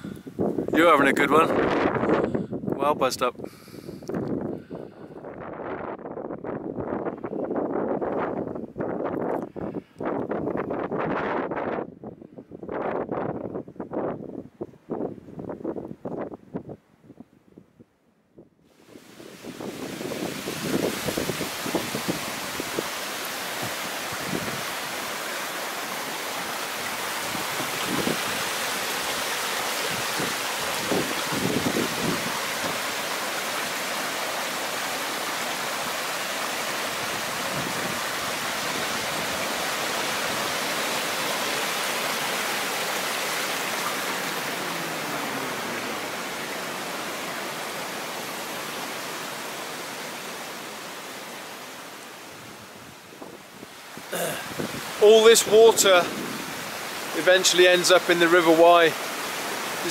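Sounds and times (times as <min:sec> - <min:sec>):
brook rushing over stones: 0:19.3 - 0:50.5, 0:56.9 - 0:59.9.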